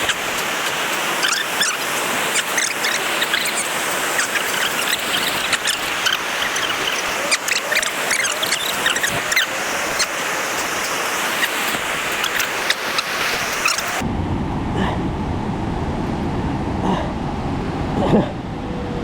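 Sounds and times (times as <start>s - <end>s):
fast-flowing river rushing: 0.0s - 14.0s
high-pitched chirps and squeaks: 1.2s - 10.2s, 11.3s - 14.0s.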